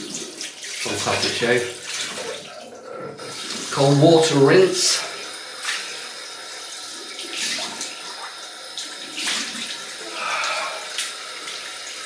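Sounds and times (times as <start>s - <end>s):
water splashing on face: 0.0s - 6.0s, 7.1s - 12.0s.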